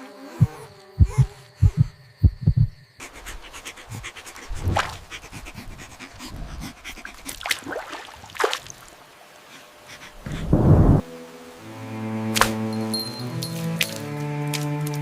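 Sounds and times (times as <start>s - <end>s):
animal panting: 0.4s - 7.5s, 9.5s - 11.0s.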